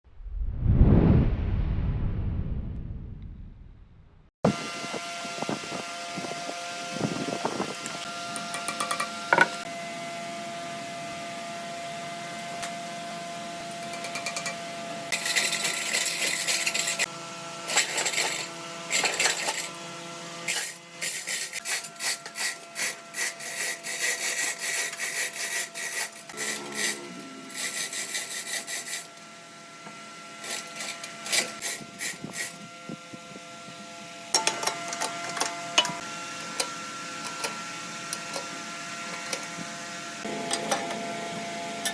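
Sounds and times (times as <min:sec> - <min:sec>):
scraping strokes on wood: 0:20.5 - 0:29.1.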